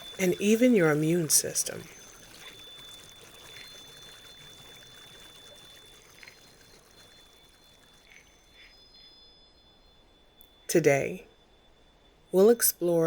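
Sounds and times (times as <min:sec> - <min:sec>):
faint trickling water: 0:00.0 - 0:09.9
thin high steady tone: 0:00.0 - 0:13.0.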